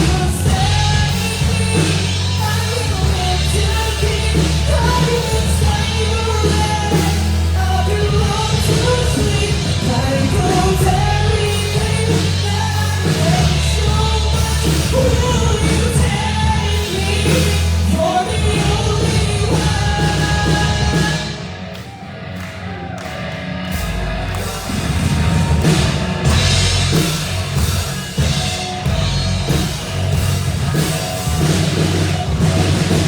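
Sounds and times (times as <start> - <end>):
person singing: 0.0 - 21.5
rock band playing: 0.0 - 33.0.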